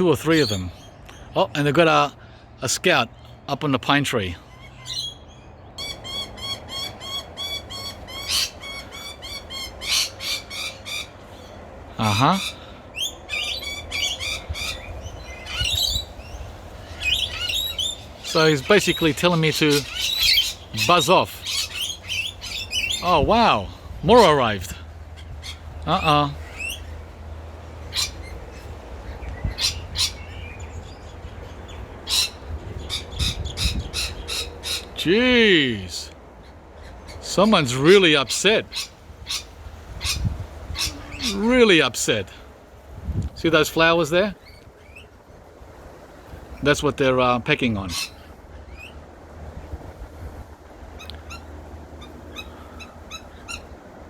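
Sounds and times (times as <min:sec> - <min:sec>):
parrot harsh screeches: 0:05.8 - 0:11.5, 0:16.8 - 0:23.0
parrot calling sharp notes: 0:12.0 - 0:24.6.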